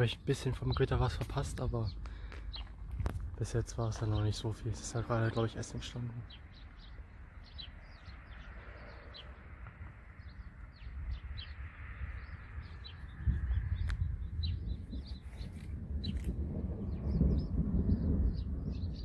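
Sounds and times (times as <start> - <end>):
small birds chirping: 0.0 - 19.0
low rumble: 6.4 - 19.0.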